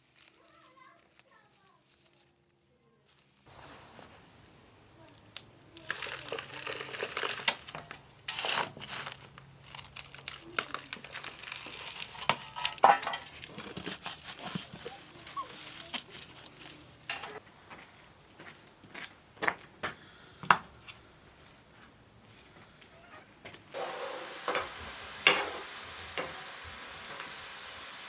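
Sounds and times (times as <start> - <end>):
plastic crinkling and rustling: 0.0 - 4.3, 5.1 - 17.4
dishes and utensils clicking: 17.0 - 17.4, 24.5 - 25.6.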